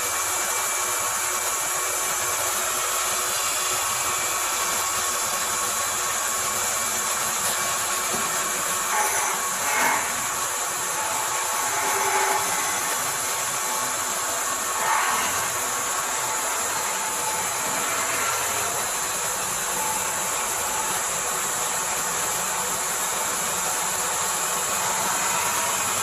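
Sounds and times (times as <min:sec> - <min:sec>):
lathe cutting wood: 0:02.3 - 0:26.0.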